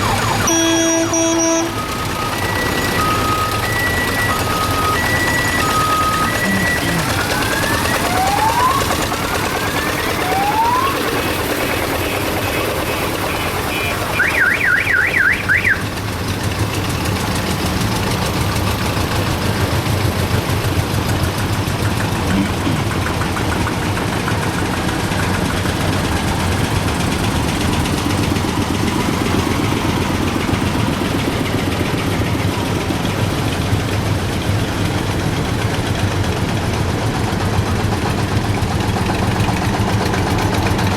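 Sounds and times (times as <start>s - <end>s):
warbling siren-like horn: 0.0s - 16.0s
old vehicle engines running: 0.0s - 40.9s.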